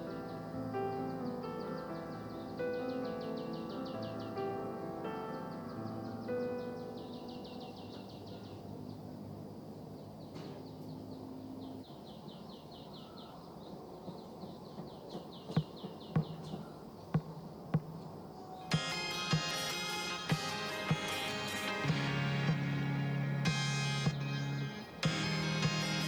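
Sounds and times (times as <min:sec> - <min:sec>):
bird trilling: 0:14.1 - 0:18.8
sharp knocks: 0:14.1 - 0:19.5.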